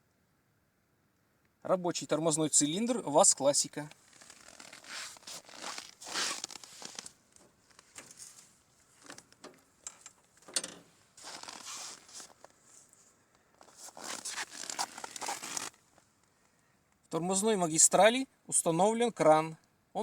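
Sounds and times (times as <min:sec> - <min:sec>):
faint rustling and scraping: 0:03.8 - 0:16.6.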